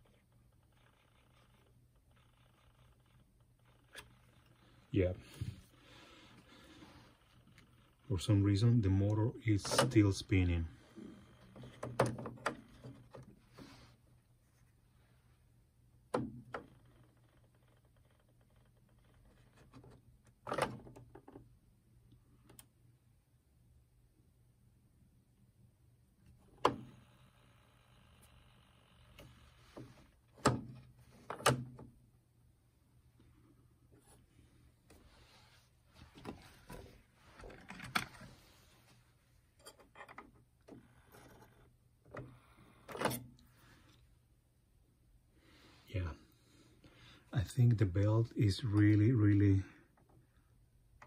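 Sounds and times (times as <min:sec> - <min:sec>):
faint low hum: 0:00.0 - 0:51.0
plastic and metal parts clunking: 0:09.6 - 0:10.2, 0:10.9 - 0:13.7, 0:29.2 - 0:32.0, 0:36.1 - 0:38.4, 0:39.6 - 0:43.4.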